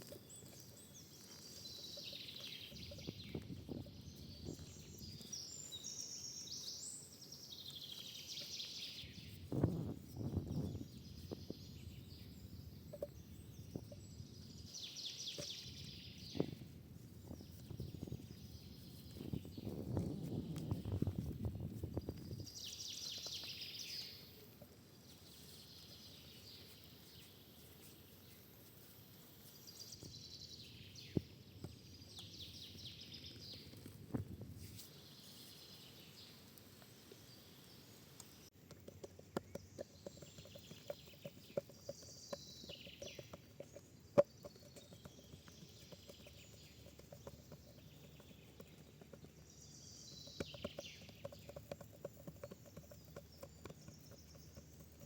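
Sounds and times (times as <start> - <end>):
sharp clicks and ticks: 50.1 - 55.0.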